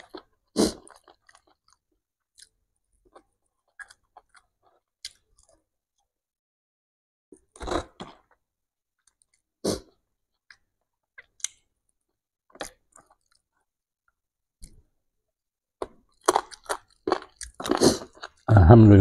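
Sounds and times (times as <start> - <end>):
person chewing and eating: 0.0 - 5.7, 12.5 - 13.6, 15.8 - 18.5.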